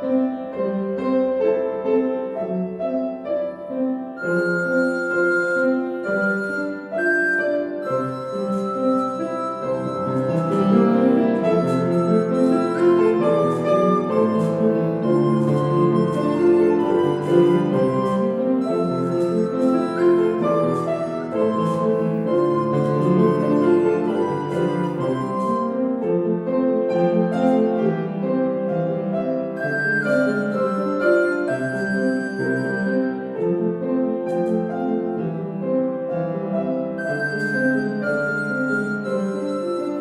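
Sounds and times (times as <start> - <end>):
lullaby on keyboard: 4.1 - 26.0, 29.5 - 33.4, 36.8 - 40.0.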